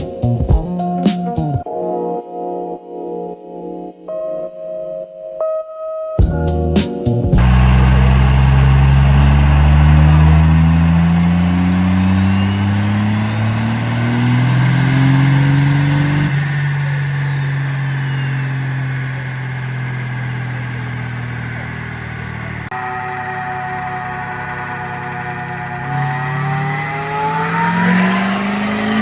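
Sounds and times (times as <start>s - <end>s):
turbo whistle: 7.4s - 21.4s
diesel truck engine accelerating: 7.4s - 29.0s.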